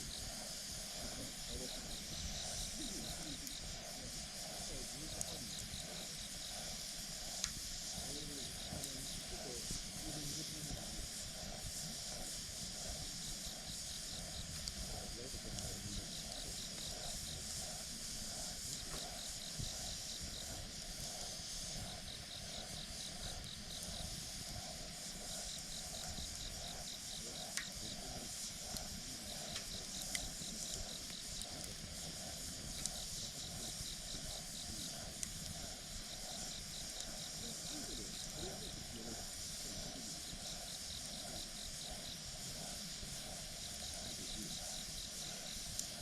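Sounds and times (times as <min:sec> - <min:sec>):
campfire crackling and popping: 0:00.0 - 0:46.0
insects chirping: 0:00.0 - 0:46.0.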